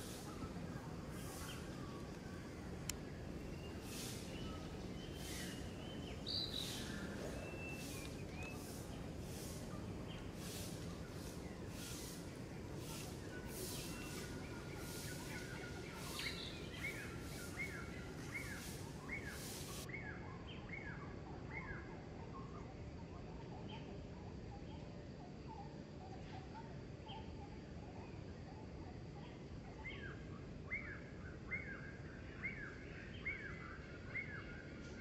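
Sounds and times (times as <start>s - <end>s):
bird chirping: 0.0s - 19.9s
pulsing high hiss: 0.0s - 19.9s
outdoor background noise: 0.0s - 35.0s.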